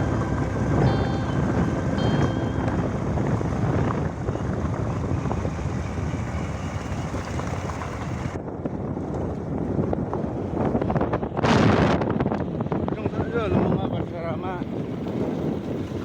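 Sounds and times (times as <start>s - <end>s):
motorcycle running: 0.0s - 8.4s
wind rushing over microphone: 0.0s - 16.0s.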